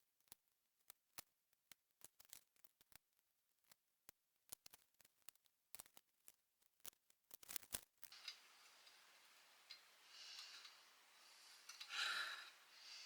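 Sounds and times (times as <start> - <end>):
faint steady hiss: 8.1 - 13.0.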